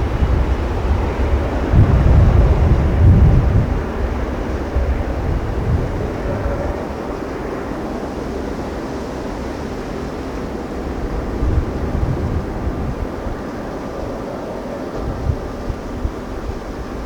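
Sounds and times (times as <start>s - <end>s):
rumbling jet engine noise: 0.0s - 17.0s
wind buffeting microphone: 0.0s - 17.0s.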